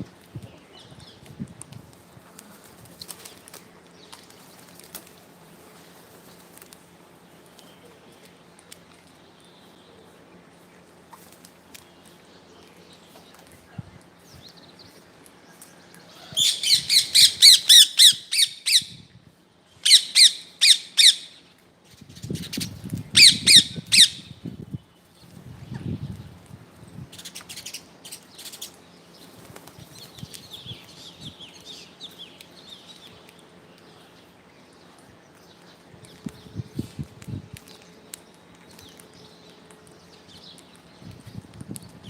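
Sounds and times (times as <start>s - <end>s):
parrot squawking: 16.4s - 18.9s, 23.2s - 24.3s.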